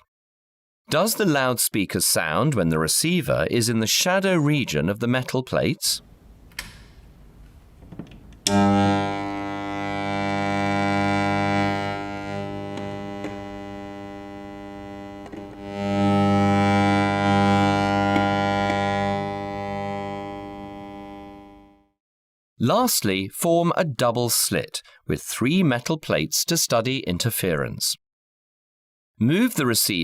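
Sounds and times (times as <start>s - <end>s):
loudspeaker low tone: 8.4s - 21.7s.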